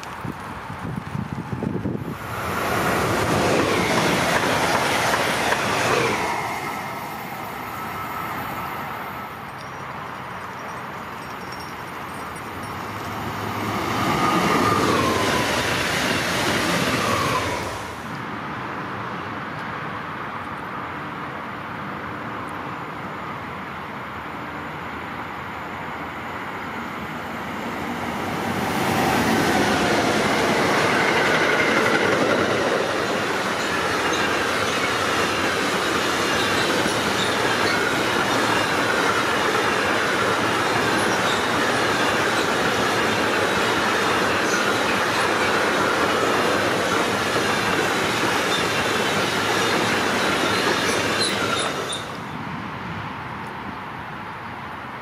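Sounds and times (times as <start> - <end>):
freight train passing: 0.0 - 55.0
wheel-on-rail clatter: 30.5 - 46.1
light wheel squeal: 33.4 - 46.2, 47.5 - 52.4.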